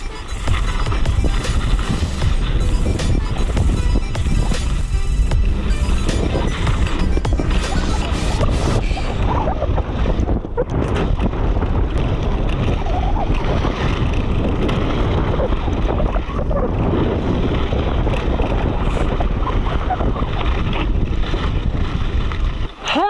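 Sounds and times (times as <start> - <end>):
wind buffeting microphone: 0.0 - 23.0
bike knocking on rough trail: 9.1 - 22.8.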